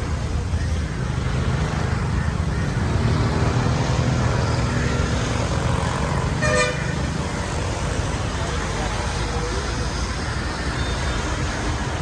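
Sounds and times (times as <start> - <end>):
street traffic engines droning: 0.0 - 12.0.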